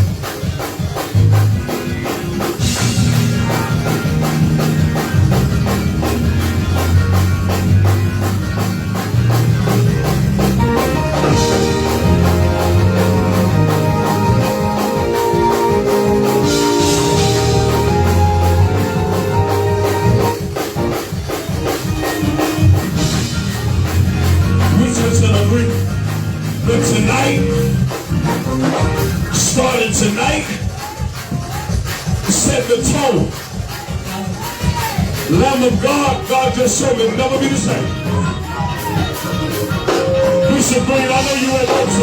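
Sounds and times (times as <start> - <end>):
held chords: 0.0 - 30.1
fast driving drums: 0.0 - 42.0
bass line: 2.4 - 30.4.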